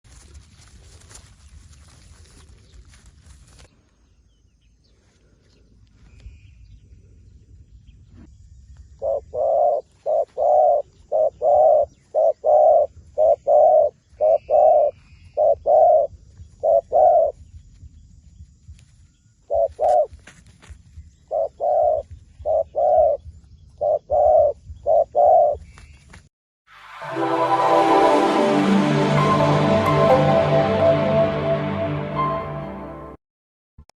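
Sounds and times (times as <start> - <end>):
dove cooing: 9.0 - 17.3, 19.5 - 20.1, 21.3 - 23.2, 23.8 - 25.6.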